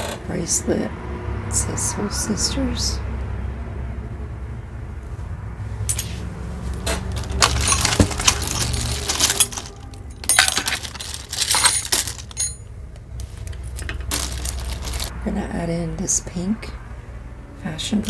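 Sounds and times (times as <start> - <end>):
jewelry clinking and rattling: 5.9 - 6.2, 6.8 - 12.7, 13.4 - 15.1.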